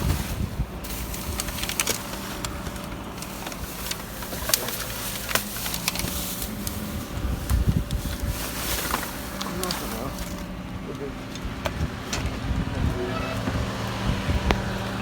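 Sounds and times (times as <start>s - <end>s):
steady low hum: 0.0s - 15.0s
items clicking and knocking: 0.9s - 12.4s.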